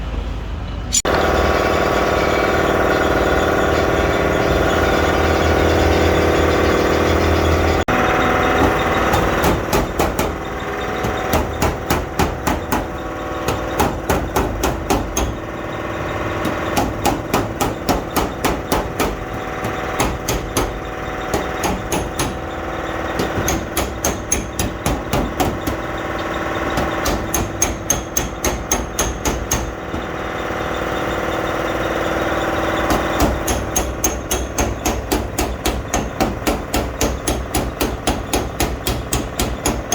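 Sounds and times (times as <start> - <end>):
steady machine hum: 0.7 - 39.9
hammer blows on sheet metal: 26.7 - 30.1.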